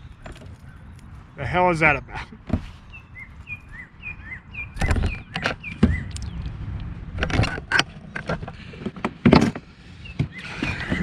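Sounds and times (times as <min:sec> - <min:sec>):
small bird chirping: 0:02.8 - 0:06.6.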